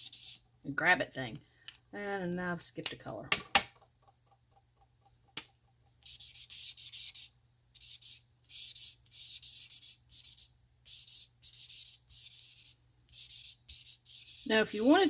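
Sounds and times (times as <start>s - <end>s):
marker scribbling on paper: 0.0s - 0.4s, 6.0s - 15.0s.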